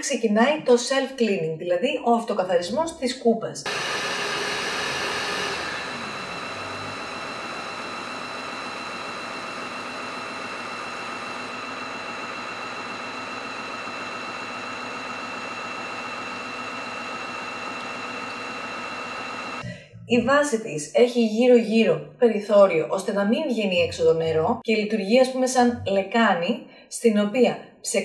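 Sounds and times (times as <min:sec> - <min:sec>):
vacuum mop motor whine: 0:03.7 - 0:19.6.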